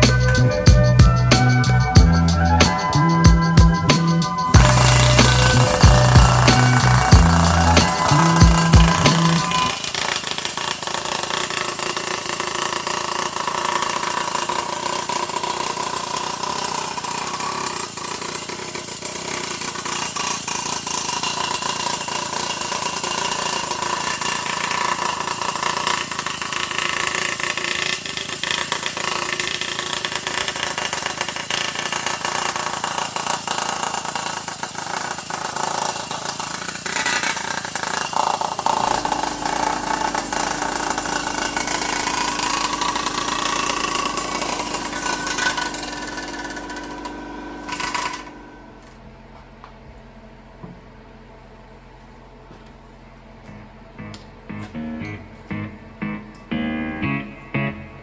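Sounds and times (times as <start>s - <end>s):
motor running with whine: 0.0s - 14.8s, 38.6s - 49.1s.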